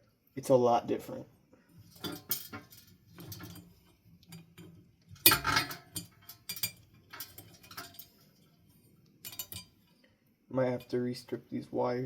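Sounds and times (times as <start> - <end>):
fan parts clicking and clinking: 1.8 - 9.9
hardware clattering: 1.8 - 9.9.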